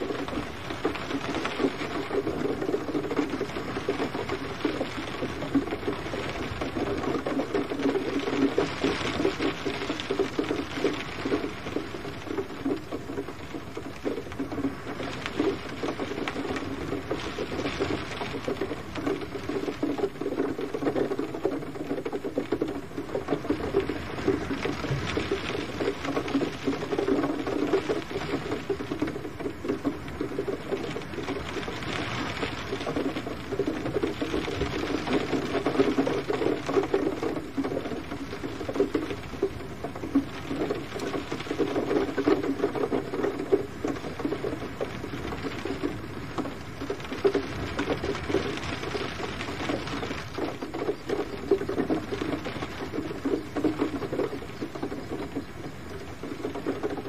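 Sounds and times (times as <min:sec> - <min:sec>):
gentle rain patter: 0:00.0 - 0:57.0.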